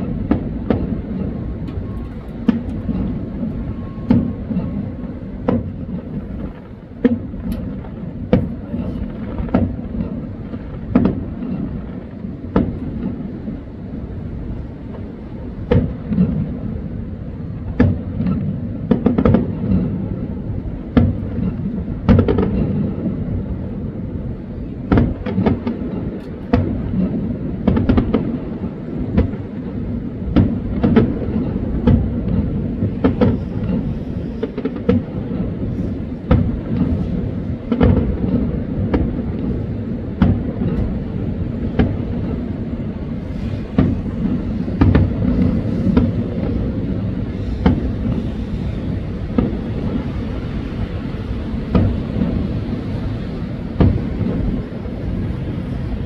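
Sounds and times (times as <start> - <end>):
continuous low rumble: 0.0 - 56.0
fireworks bursting with sharp bangs: 0.0 - 56.0.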